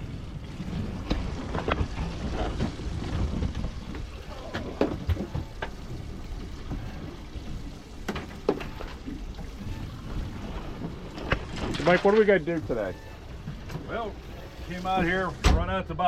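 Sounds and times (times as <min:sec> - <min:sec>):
wind rumbling on microphone: 0:00.0 - 0:08.0
water lapping against boat: 0:00.0 - 0:15.8.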